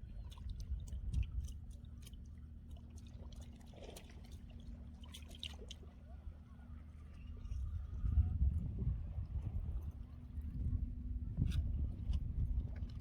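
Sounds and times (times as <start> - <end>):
low steady rumble: 0.0 - 13.0
small splashes: 0.1 - 6.0.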